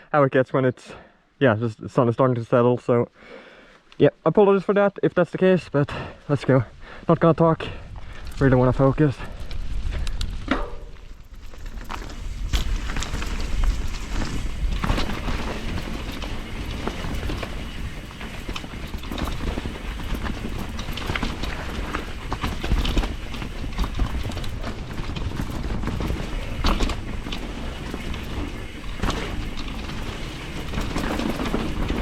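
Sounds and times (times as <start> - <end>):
tyre and wind rumble: 6.5 - 32.0
bike knocks and rattles: 9.9 - 32.0.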